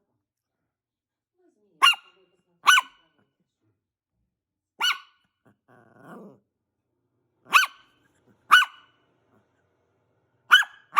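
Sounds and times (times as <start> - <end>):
dog barking: 1.8 - 3.1, 4.8 - 5.3, 7.5 - 9.0, 10.5 - 10.9.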